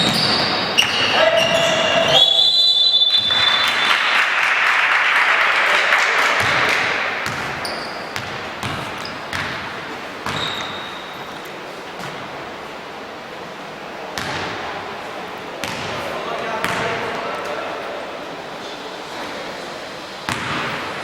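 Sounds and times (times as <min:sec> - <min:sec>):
basketball bouncing: 0:00.0 - 0:01.8, 0:06.4 - 0:10.9, 0:15.6 - 0:16.0, 0:16.6 - 0:17.0, 0:20.3 - 0:20.8
crowd noise: 0:00.0 - 0:21.0
referee's whistle blast: 0:00.1 - 0:04.1.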